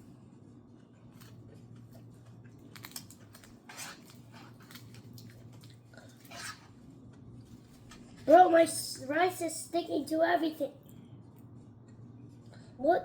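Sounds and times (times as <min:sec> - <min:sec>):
chewing sticky rice: 0:00.6 - 0:08.2.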